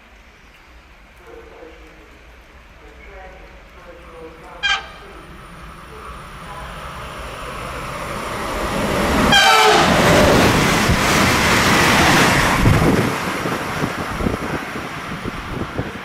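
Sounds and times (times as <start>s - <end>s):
train rushing past: 2.3s - 16.0s
train horn blast: 4.6s - 6.8s, 9.2s - 10.4s.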